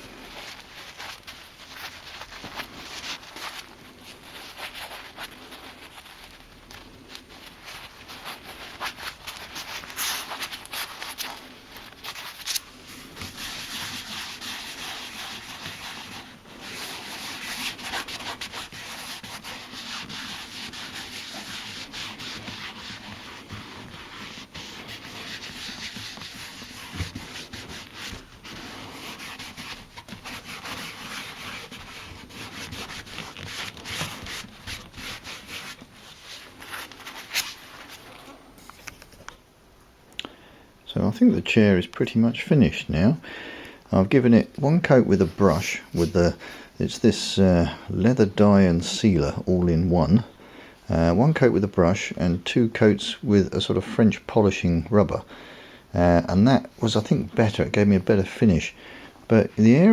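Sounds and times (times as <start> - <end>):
pad rubbing over leather: 0.0 - 38.7.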